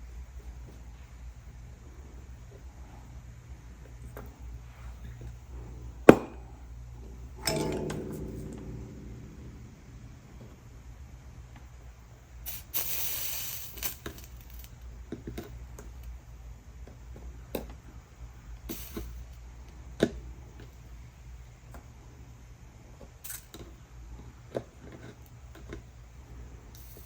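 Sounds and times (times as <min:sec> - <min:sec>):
steady low hum: 0:01.9 - 0:12.4.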